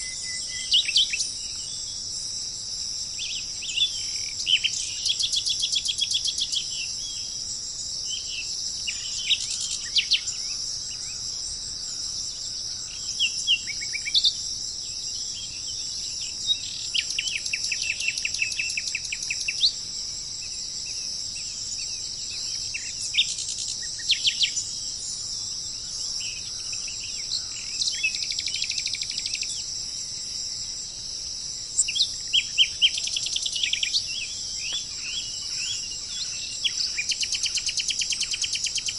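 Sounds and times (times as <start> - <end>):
high-pitched insect chorus: 0.0 - 38.9
birds chirping and trilling: 8.0 - 19.8, 31.8 - 38.9.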